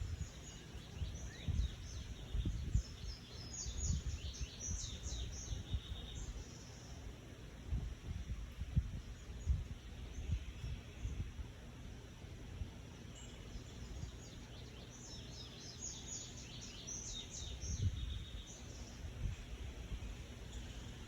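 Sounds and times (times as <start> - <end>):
bird chirping: 0.0 - 7.1, 13.1 - 21.0.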